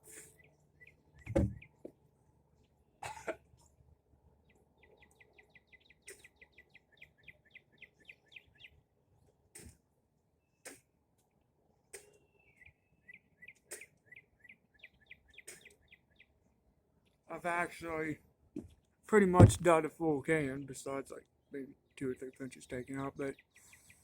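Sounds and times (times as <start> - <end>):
bird chirping: 0.1 - 1.9, 4.4 - 8.8, 11.9 - 16.4, 21.3 - 24.0
person coughing: 3.0 - 3.4.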